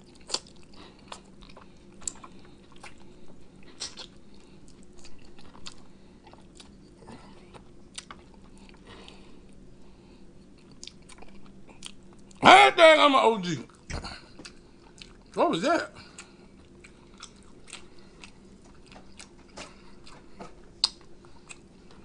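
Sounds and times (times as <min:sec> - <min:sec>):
man biting and chewing: 0:00.1 - 0:09.6, 0:10.4 - 0:12.4, 0:16.0 - 0:22.0.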